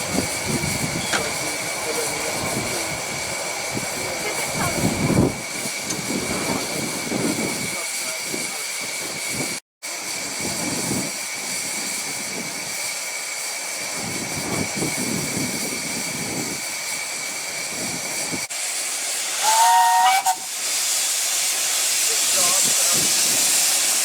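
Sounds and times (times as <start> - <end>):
steam locomotive hissing: 0.0 - 24.0
two-note train whistle: 19.4 - 20.5.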